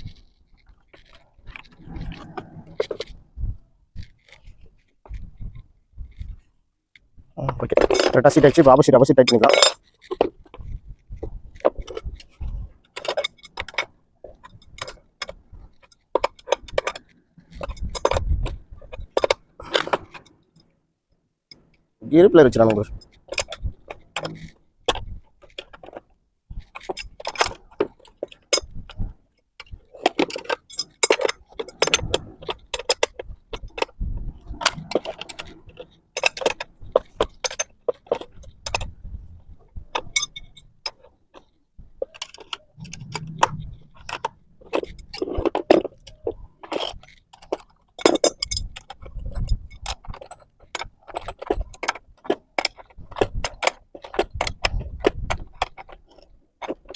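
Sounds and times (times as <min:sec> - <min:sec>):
metallic clinks of spanner and bolts: 0:07.5 - 0:10.3, 0:29.6 - 0:34.0, 0:40.0 - 0:54.8.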